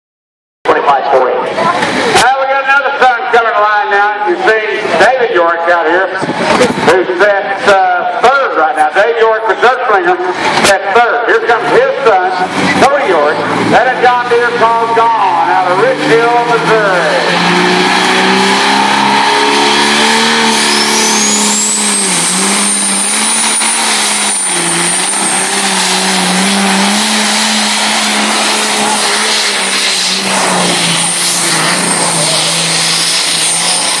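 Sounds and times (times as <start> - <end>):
tractor engine under load: 11.6 - 34.0
high whine: 12.7 - 34.0.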